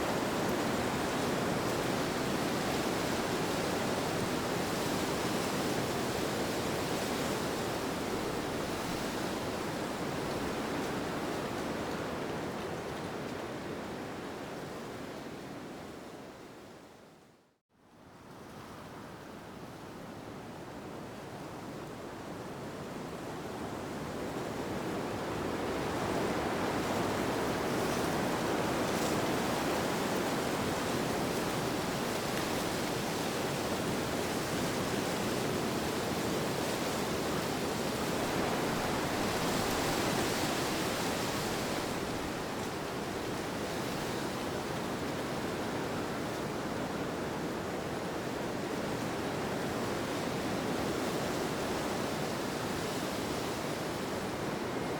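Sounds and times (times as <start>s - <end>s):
rushing wind: 25.6s - 46.2s.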